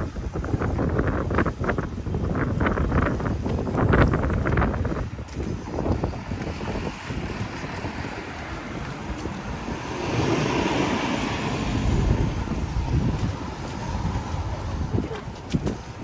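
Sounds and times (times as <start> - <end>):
street traffic noise: 0.0 - 16.0
wind buffeting microphone: 0.0 - 16.0.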